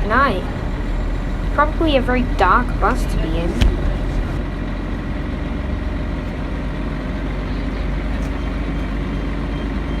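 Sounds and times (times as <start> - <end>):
diesel bus engine running: 0.0 - 10.0.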